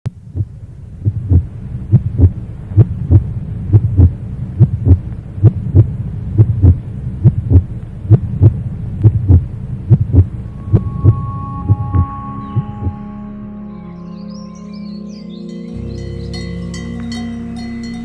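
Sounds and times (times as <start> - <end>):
heartbeat thumping: 0.2 - 13.0.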